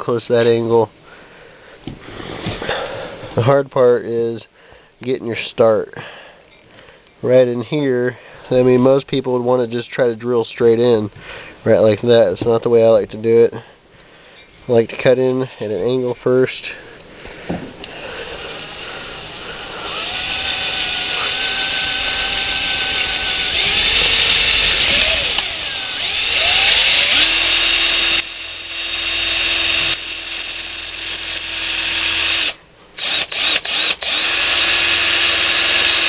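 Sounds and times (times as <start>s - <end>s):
power drill grinding metal: 17.8s - 36.0s.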